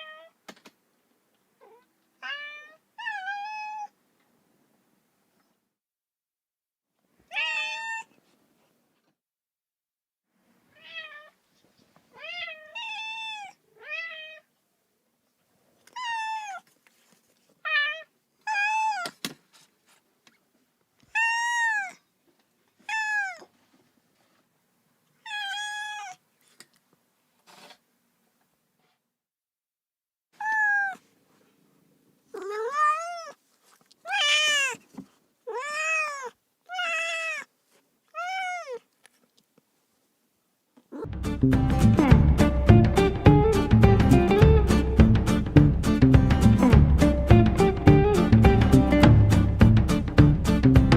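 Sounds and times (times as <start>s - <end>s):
kitten meowing: 15.9s - 16.6s, 17.7s - 19.1s, 21.1s - 22.0s, 22.9s - 23.5s, 25.2s - 26.2s, 30.4s - 31.0s, 32.4s - 33.4s, 34.1s - 34.8s, 35.5s - 37.5s, 38.2s - 38.8s.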